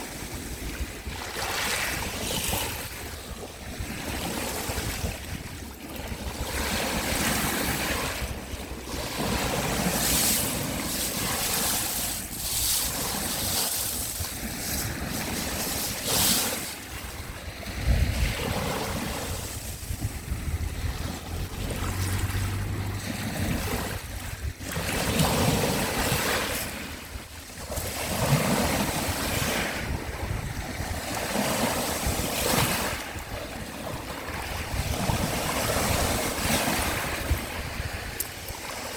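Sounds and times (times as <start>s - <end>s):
sea waves washing onto shore: 0.0s - 38.9s
wind rumble on microphone: 0.0s - 38.9s.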